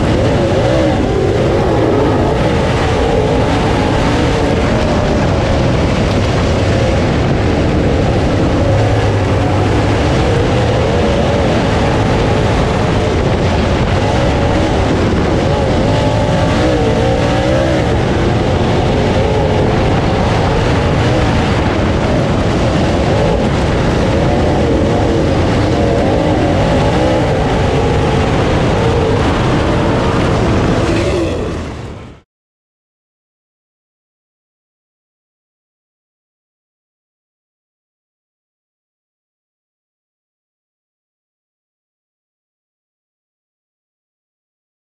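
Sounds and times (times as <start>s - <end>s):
race car engine revving: 0.0s - 32.2s
steady rush of noise: 0.0s - 32.2s.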